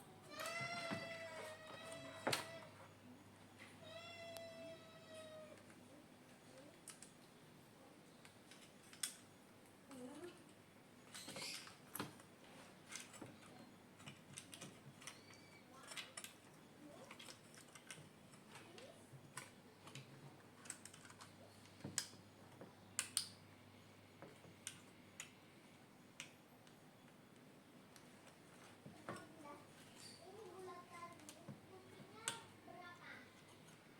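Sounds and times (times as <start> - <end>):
plastic parts snapping: 23.0 - 23.3.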